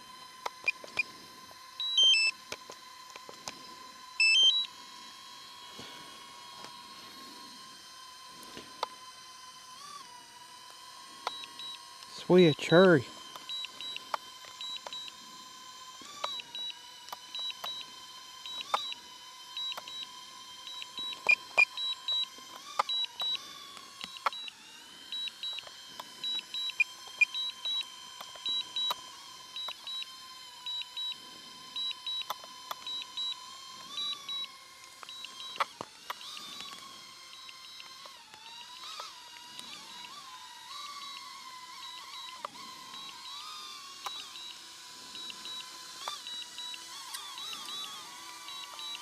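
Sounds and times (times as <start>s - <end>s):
drone whine: 0.0s - 49.0s
drone warning beeps: 1.8s - 2.4s, 4.2s - 4.8s, 11.2s - 15.4s, 16.2s - 24.5s, 25.1s - 35.7s, 41.8s - 49.0s.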